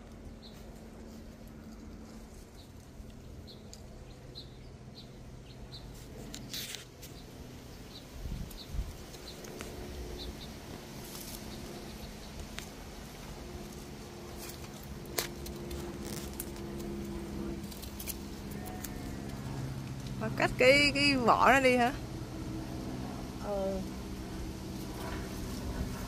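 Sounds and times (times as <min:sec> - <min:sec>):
small bird chirping: 0:02.6 - 0:13.2.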